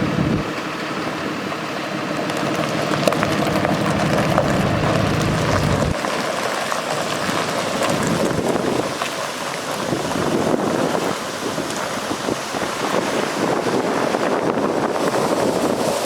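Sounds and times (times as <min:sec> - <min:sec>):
wind noise on microphone: 0:00.0 - 0:00.6, 0:02.7 - 0:06.2, 0:07.2 - 0:16.0
diesel truck engine running: 0:00.0 - 0:06.1.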